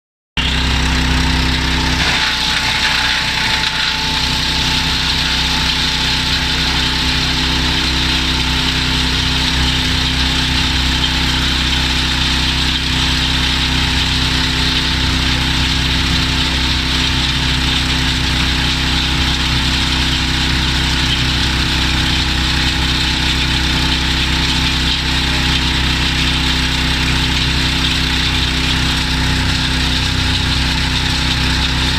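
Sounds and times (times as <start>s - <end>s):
wood chipper engine running: 0.4s - 31.9s.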